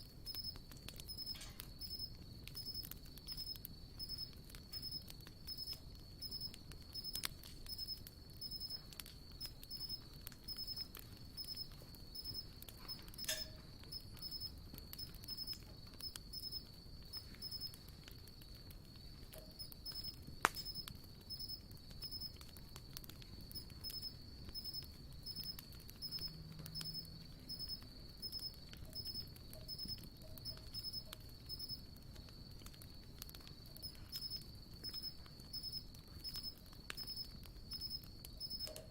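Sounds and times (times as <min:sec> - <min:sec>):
campfire crackling and popping: 0:00.0 - 0:38.9
insect chirping: 0:00.0 - 0:38.9.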